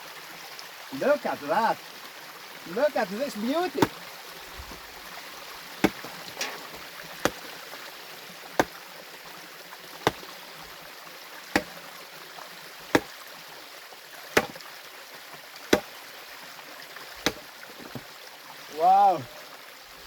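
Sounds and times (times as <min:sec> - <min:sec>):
stream running: 0:00.0 - 0:20.0
hand tool striking rock: 0:03.7 - 0:04.9, 0:05.8 - 0:07.6, 0:08.5 - 0:08.8, 0:10.0 - 0:10.3, 0:11.5 - 0:11.9, 0:12.9 - 0:13.2, 0:14.4 - 0:14.6, 0:15.7 - 0:16.0, 0:17.2 - 0:18.1.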